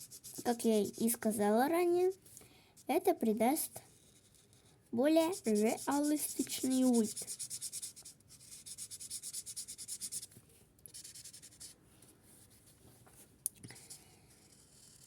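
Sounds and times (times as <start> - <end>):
marker rubbing on paper: 0.0 - 1.3, 3.9 - 10.3, 10.9 - 11.7, 14.5 - 15.0.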